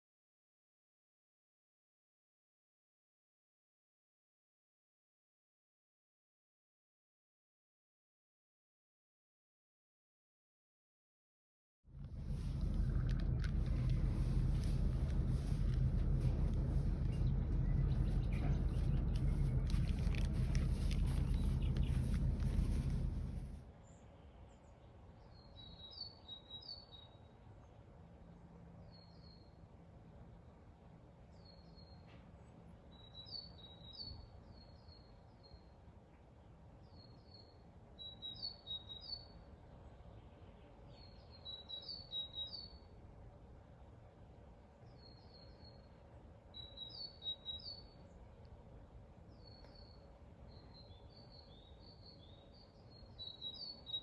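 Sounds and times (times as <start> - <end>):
faint low background hum: 11.9 - 54.0
songbird chirping: 12.0 - 43.4, 44.6 - 54.0.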